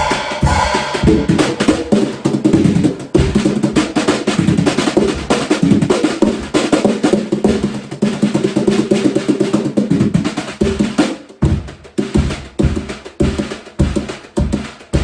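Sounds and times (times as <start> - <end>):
single drum hit: 0.0 - 3.4
drum kit played fast: 0.0 - 15.0.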